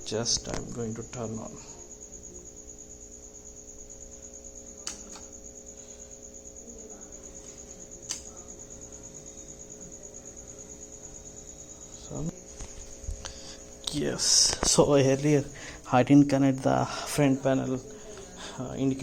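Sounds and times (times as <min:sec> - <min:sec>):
cricket chirping: 0:00.0 - 0:19.0
electrical mains hum: 0:00.0 - 0:19.0
sharp clicks: 0:04.8 - 0:05.3, 0:08.0 - 0:08.3.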